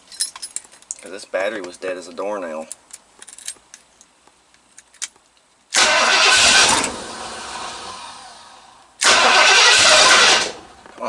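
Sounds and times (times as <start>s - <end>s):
engine cranking with starter: 5.7s - 10.8s.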